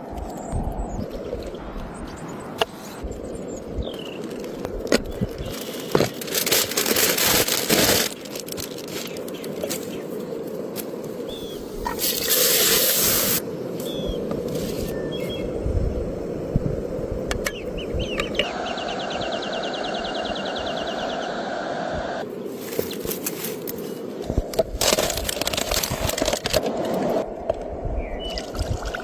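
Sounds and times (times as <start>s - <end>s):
loud hissing: 11.3s - 17.8s.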